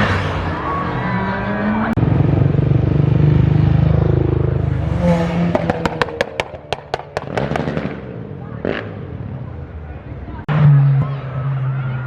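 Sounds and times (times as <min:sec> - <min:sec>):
car engine revving: 0:00.0 - 0:09.4
exhaust pops and crackles: 0:05.5 - 0:08.9.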